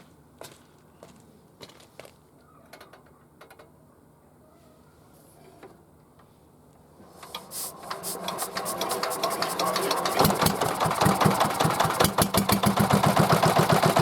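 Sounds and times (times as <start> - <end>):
diesel engine starting: 7.0 - 14.0.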